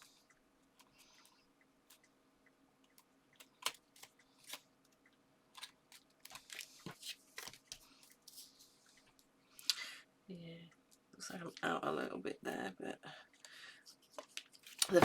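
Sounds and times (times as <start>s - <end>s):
paper clicks and crinkles: 5.6s - 8.7s.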